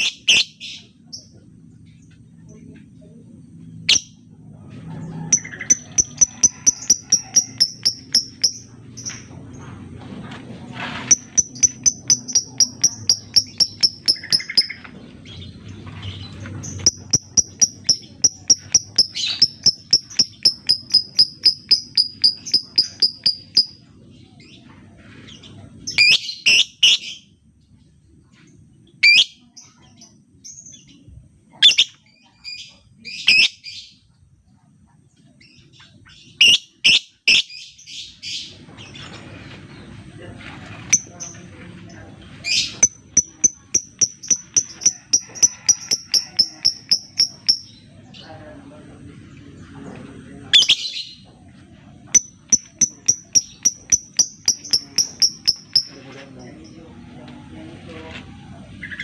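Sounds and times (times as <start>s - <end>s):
lovebird ticking chirps: 5.3s - 9.2s, 11.1s - 14.8s, 16.7s - 23.8s, 42.7s - 47.8s, 52.2s - 56.0s.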